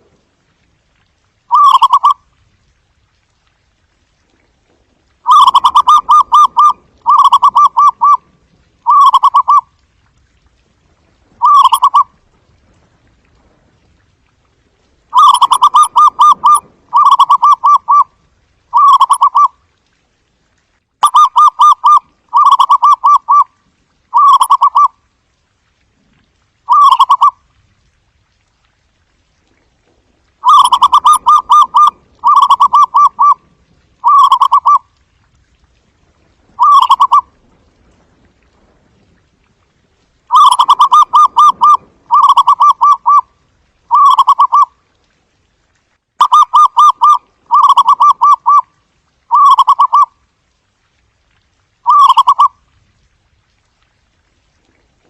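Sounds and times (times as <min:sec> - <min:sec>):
dove staccato cooing: 0:01.5 - 0:02.2, 0:05.3 - 0:08.2, 0:08.8 - 0:09.6, 0:11.4 - 0:12.1, 0:15.2 - 0:18.1, 0:30.4 - 0:33.4, 0:34.0 - 0:34.8, 0:36.6 - 0:37.3, 0:40.3 - 0:43.3, 0:43.9 - 0:44.7, 0:46.2 - 0:48.6, 0:49.3 - 0:50.1.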